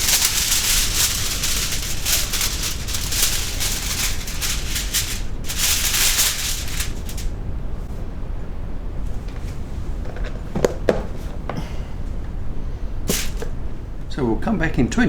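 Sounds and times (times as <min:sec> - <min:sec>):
kitchen foil crinkling: 0:00.0 - 0:07.4, 0:13.1 - 0:13.6.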